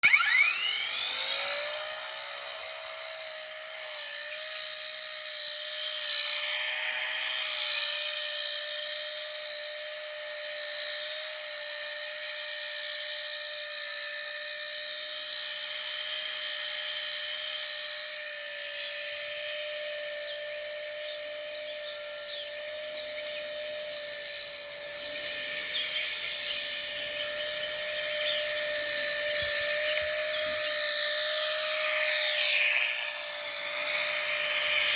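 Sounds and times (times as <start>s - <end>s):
toy helicopter motor whining: 0.0s - 34.9s.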